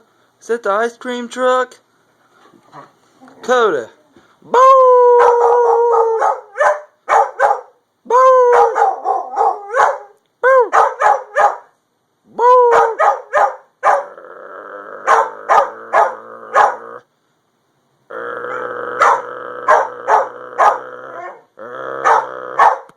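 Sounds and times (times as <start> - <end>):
puppy howling: 4.5 - 6.8, 8.1 - 11.4, 12.4 - 14.2, 14.8 - 17.0, 18.2 - 22.9.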